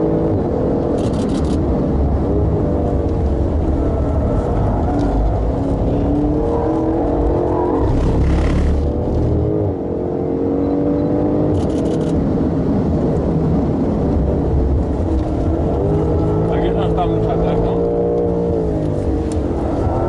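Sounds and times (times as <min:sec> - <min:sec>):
gear change: 0:00.8 - 0:09.8
car engine accelerating hard: 0:01.9 - 0:12.1, 0:13.5 - 0:20.0.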